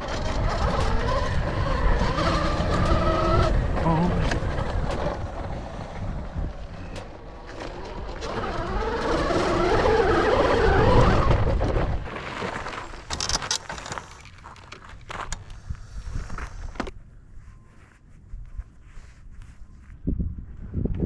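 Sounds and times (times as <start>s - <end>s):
electric motor whine: 0.0s - 11.5s
wind rumble on microphone: 0.0s - 13.5s, 15.0s - 21.0s
sharp clicks and scrapes: 0.0s - 17.0s.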